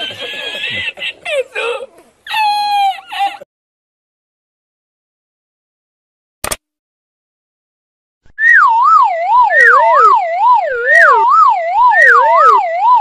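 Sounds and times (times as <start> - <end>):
second siren tone: 8.4 - 13.0
wavering electronic siren: 8.4 - 13.0.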